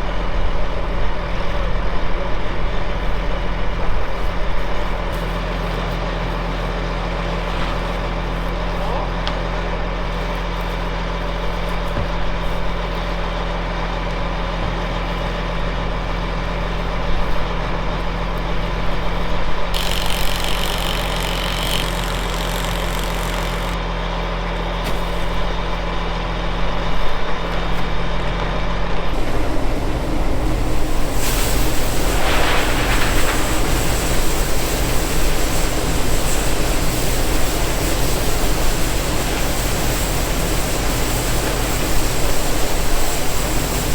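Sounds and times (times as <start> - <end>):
diesel farm machinery running: 0.0 - 43.9
broad rushing noise: 29.1 - 43.9.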